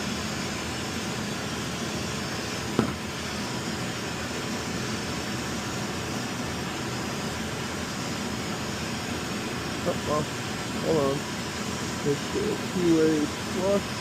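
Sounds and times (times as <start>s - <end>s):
hvac equipment humming: 0.0s - 14.0s
sharp knock: 2.8s - 3.0s.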